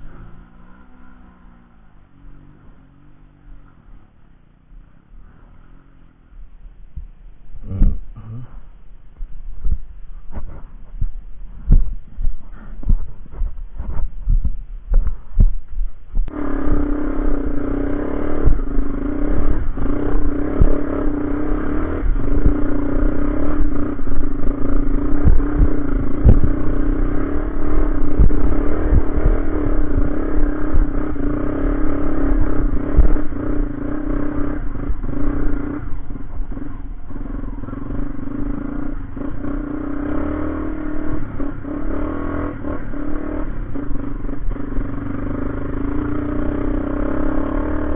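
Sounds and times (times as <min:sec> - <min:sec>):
motorcycle engine rattling: 0:00.0 - 0:47.9.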